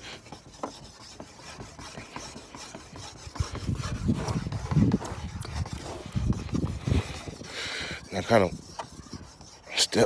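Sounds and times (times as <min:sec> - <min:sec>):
abrasive pad scrubbing plastic: 0:00.0 - 0:10.0.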